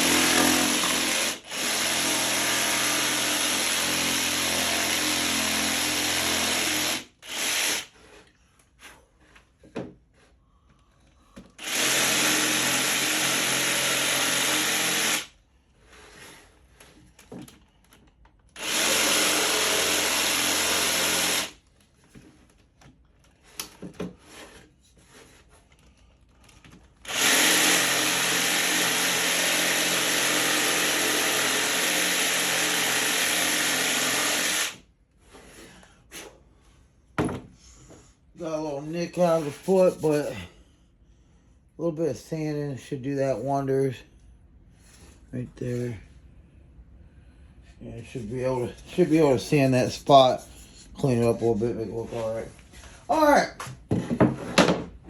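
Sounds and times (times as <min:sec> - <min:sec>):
power tool motor on wood: 0:00.0 - 0:07.9, 0:27.0 - 0:34.8.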